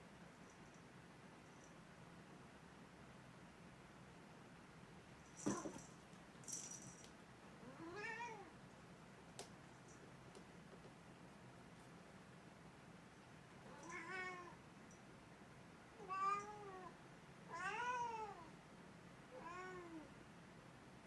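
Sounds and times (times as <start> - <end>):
cat meowing: 7.7 - 8.5, 17.5 - 18.5.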